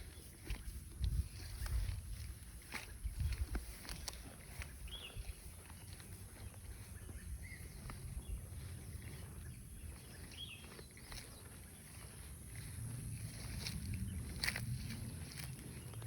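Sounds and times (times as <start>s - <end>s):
low rumble: 11.0s - 16.0s.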